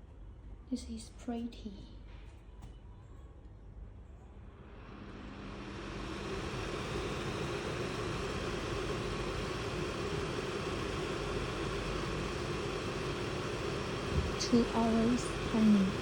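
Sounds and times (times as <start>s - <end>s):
air purifier fan rushing: 4.4s - 16.0s.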